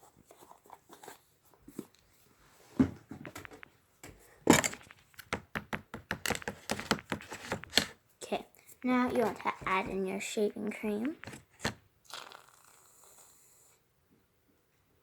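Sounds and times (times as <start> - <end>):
containers clicking and knocking: 4.5 - 8.0, 8.9 - 10.0, 11.0 - 11.8.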